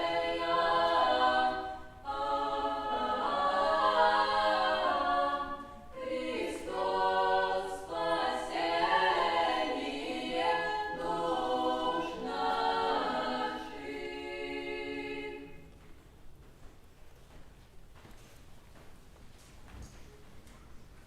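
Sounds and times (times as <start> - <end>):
unaccompanied choir singing: 0.0 - 15.8.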